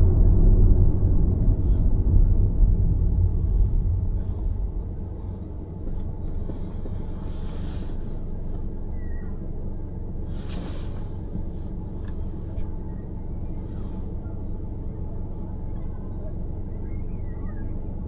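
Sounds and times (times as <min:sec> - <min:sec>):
car road and engine rumble: 0:00.0 - 0:18.0
brief hiss: 0:10.3 - 0:11.2.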